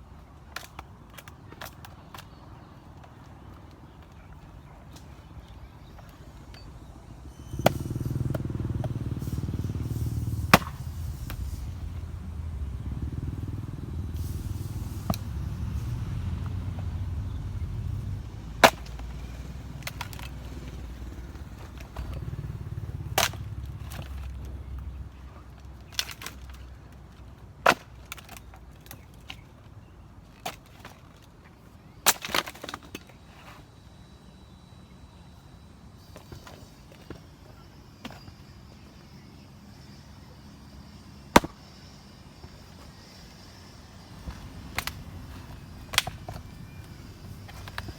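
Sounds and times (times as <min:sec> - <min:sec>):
steady low rumble: 0:06.3 - 0:25.2
axe chopping wood: 0:10.4 - 0:11.6, 0:18.6 - 0:19.1, 0:41.4 - 0:41.6, 0:44.3 - 0:46.5.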